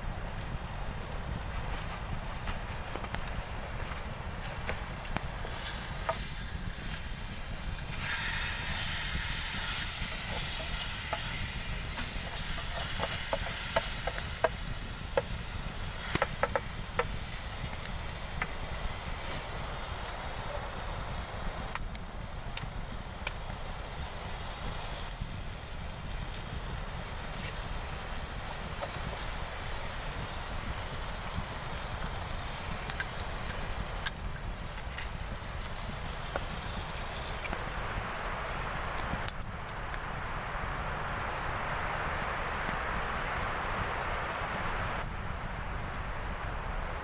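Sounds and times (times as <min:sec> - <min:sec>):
wind rumble on microphone: 0:00.0 - 0:47.0
food sizzling in a pan: 0:02.3 - 0:37.8.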